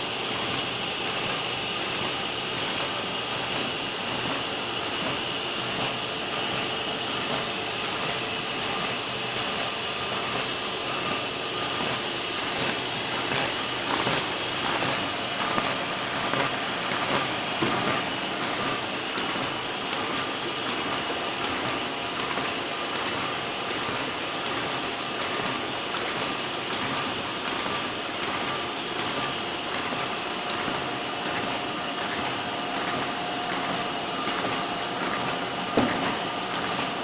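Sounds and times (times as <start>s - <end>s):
paper folding machine whirring: 0.0s - 37.0s
rapid clicking of sheets feeding: 0.2s - 37.0s.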